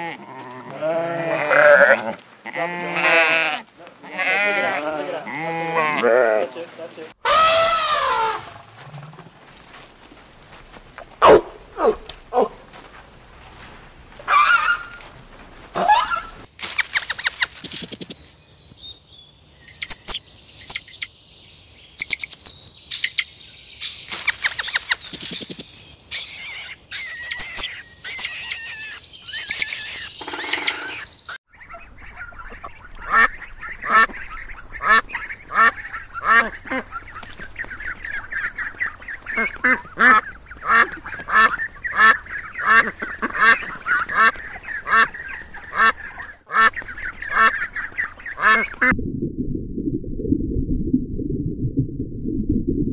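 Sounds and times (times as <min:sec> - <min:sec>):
ducks quacking: 0:31.6 - 0:48.9.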